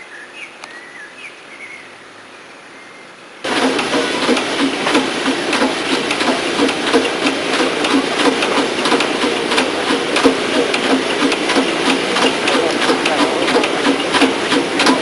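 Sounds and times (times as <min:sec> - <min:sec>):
fast mechanical clicking: 0:03.5 - 0:15.0.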